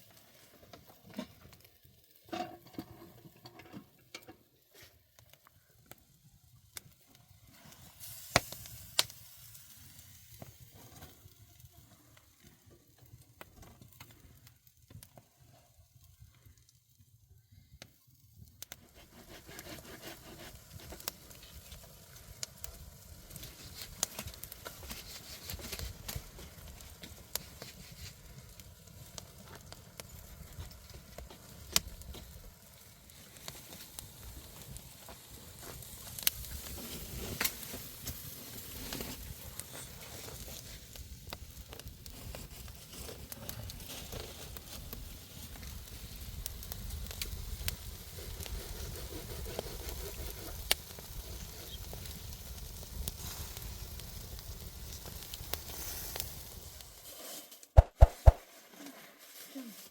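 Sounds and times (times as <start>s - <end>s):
crackling and sizzling: 0.0s - 59.9s
sharp snaps: 57.8s - 58.4s.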